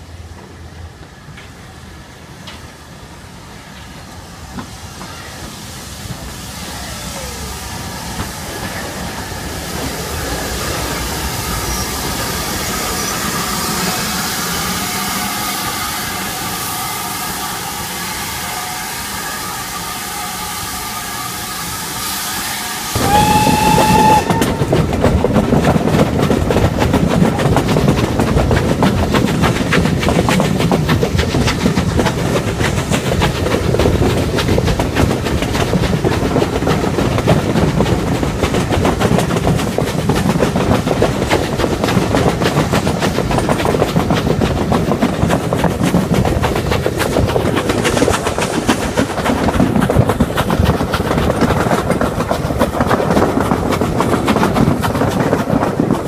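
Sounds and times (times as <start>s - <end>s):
train wheels rumbling on rails: 0.0s - 56.0s
train whistle: 12.8s - 24.8s.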